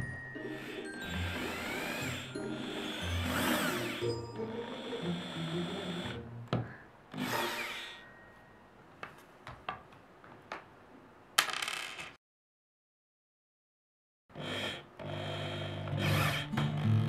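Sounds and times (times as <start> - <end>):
power drill running: 0.4 - 6.2, 7.1 - 8.0, 14.4 - 16.6.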